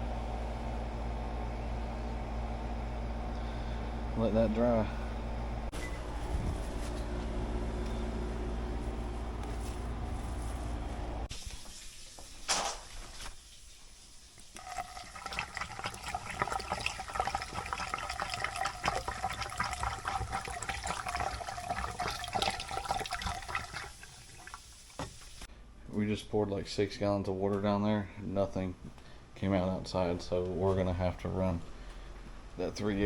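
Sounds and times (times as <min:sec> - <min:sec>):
low machine hum: 0:00.0 - 0:11.3
water splashing in a pipe: 0:13.9 - 0:25.5.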